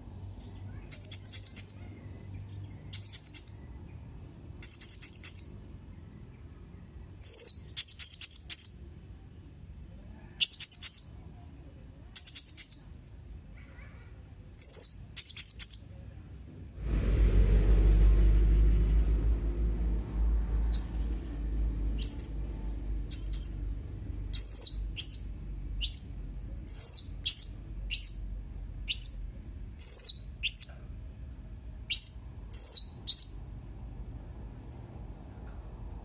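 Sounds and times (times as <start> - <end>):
low rumble: 16.4 - 36.0.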